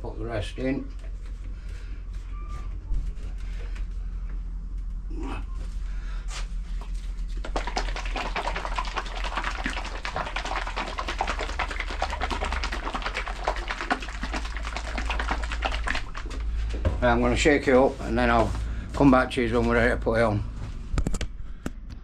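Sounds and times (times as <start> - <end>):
steady low hum: 0.0 - 22.0
bottle shaken sloshing rattle: 6.8 - 18.7.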